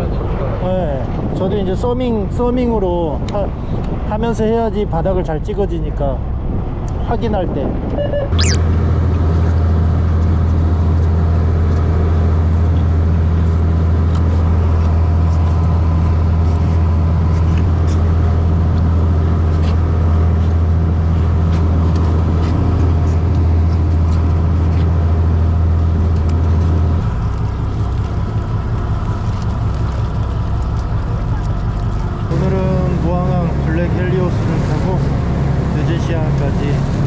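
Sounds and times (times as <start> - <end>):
boat engine humming: 11.2 - 37.0.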